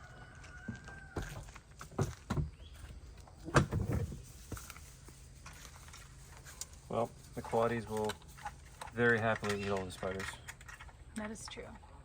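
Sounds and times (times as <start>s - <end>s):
dull knocks and thumps: 0.6s - 2.8s, 3.4s - 4.7s.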